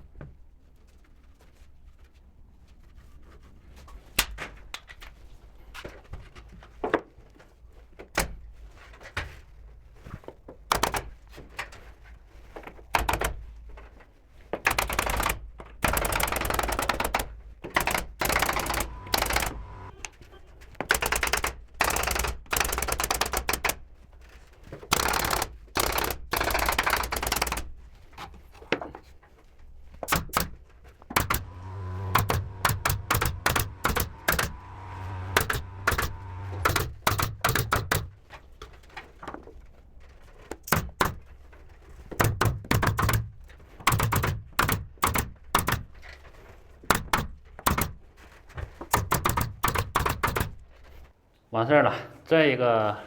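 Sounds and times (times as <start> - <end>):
pneumatic nail gun firing: 10.7 - 11.4, 13.0 - 13.5, 14.6 - 20.0, 20.8 - 23.8, 24.9 - 27.8, 30.0 - 38.3, 40.6 - 41.3, 42.1 - 46.1, 46.8 - 48.1, 48.8 - 50.9.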